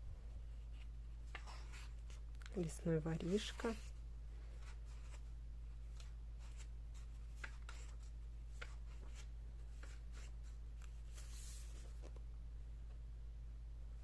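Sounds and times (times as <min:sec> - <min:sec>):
book pages rustling: 0:00.5 - 0:04.0, 0:04.6 - 0:12.2.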